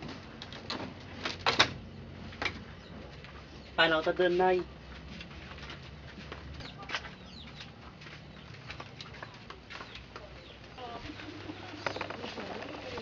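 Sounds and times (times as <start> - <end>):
birds chirping: 2.3 - 4.9, 6.4 - 13.0.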